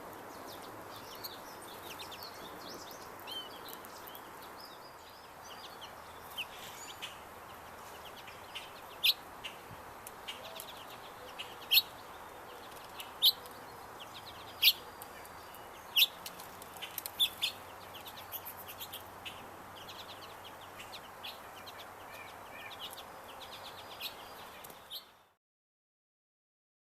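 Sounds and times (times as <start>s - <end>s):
birds chirping: 0.0s - 25.4s
loud sharp bird calls: 5.7s - 25.3s.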